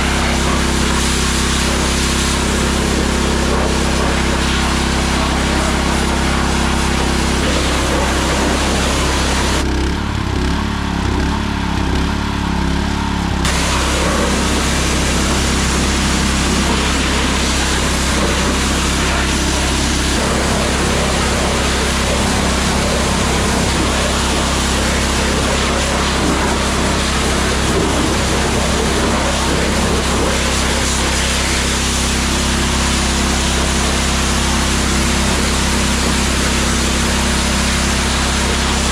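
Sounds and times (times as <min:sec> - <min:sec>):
high-pressure spray hiss: 0:00.0 - 0:09.6, 0:13.5 - 0:38.9
pressure washer pump hum: 0:00.0 - 0:38.9.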